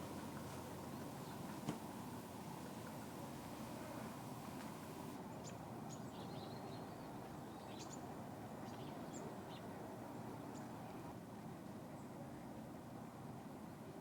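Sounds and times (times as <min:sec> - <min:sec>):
low background hiss: 0:00.0 - 0:14.0
songbirds chirping: 0:00.3 - 0:08.0.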